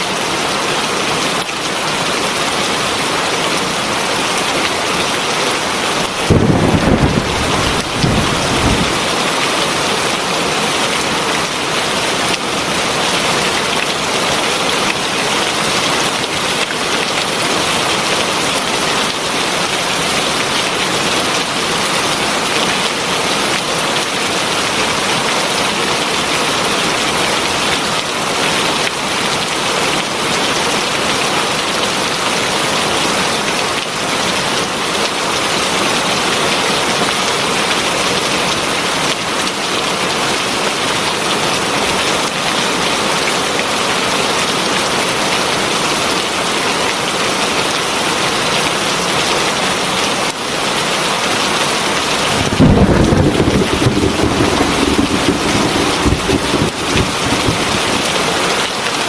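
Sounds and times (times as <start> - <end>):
heavy rain hissing: 51.9 - 59.0.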